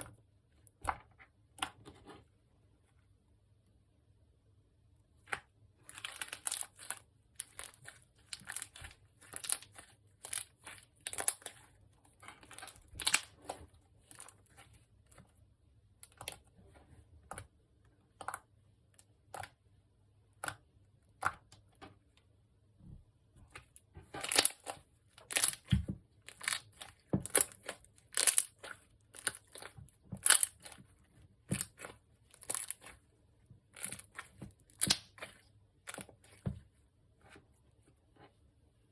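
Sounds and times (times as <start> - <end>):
slime squishing by hand: 5.2 - 38.6.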